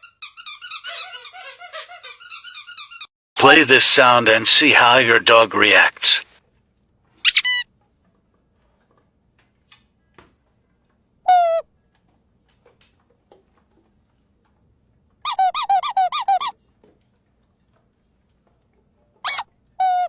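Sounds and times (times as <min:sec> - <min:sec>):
squeaky dog toy squeaking: 0:00.0 - 0:03.1, 0:07.2 - 0:07.6, 0:11.3 - 0:11.6, 0:15.2 - 0:16.6, 0:19.2 - 0:20.0.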